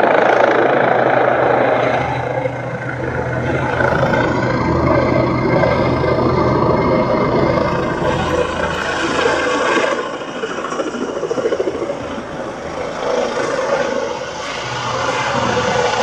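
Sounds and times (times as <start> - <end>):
helicopter rotor drone: 0.0 - 16.0
road traffic: 0.0 - 16.0.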